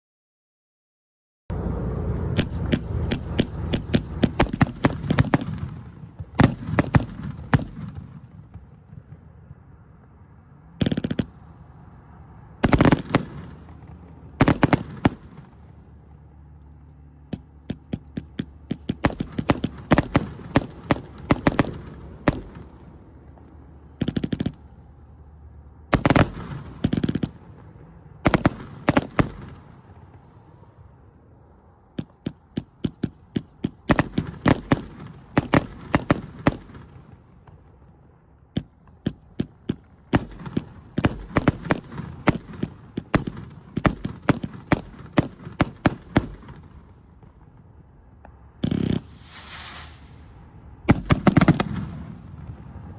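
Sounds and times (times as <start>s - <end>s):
fireworks cake firing: 2.3s - 9.3s, 17.3s - 24.8s, 25.9s - 29.8s, 32.0s - 37.0s, 48.6s - 52.1s.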